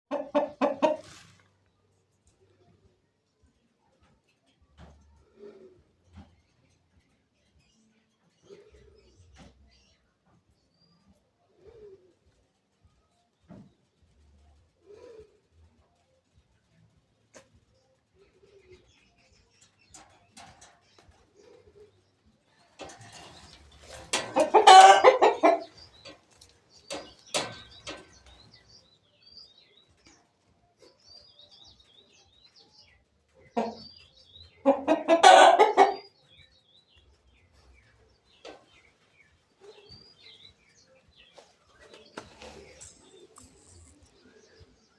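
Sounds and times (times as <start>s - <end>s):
chickens clucking: 0.1s - 1.7s, 14.6s - 16.0s, 17.2s - 44.9s.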